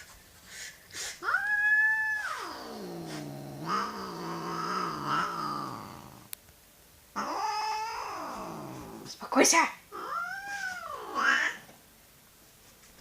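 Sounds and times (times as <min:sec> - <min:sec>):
cat yowling: 0:01.2 - 0:06.2, 0:07.2 - 0:09.0, 0:09.9 - 0:11.7
cat growling: 0:01.2 - 0:06.4, 0:07.2 - 0:09.2, 0:09.9 - 0:11.7.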